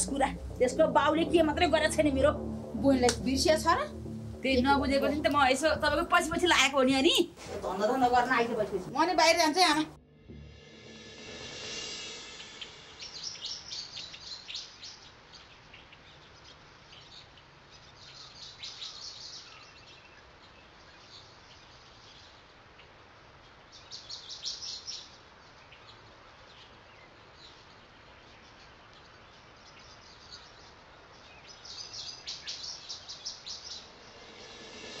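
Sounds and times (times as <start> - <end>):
faint background hiss: 0.0 - 35.0
birds chirping: 12.2 - 22.5, 23.4 - 35.0.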